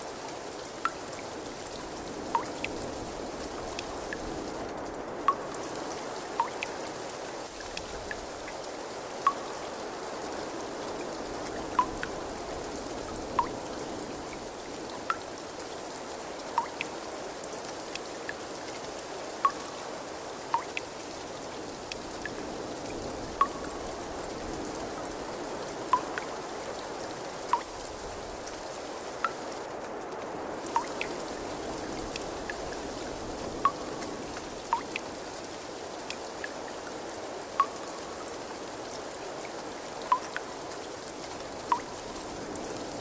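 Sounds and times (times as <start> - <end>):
water trickling: 0.0 - 43.0
water drops plinking: 2.4 - 2.7, 5.3 - 5.5, 6.4 - 6.8, 9.3 - 9.5, 11.8 - 12.1, 16.5 - 16.9, 20.5 - 20.9, 23.4 - 23.8, 25.9 - 26.3, 27.5 - 27.8, 30.7 - 31.1, 34.7 - 35.0, 37.6 - 38.0, 40.1 - 40.4, 41.7 - 41.9.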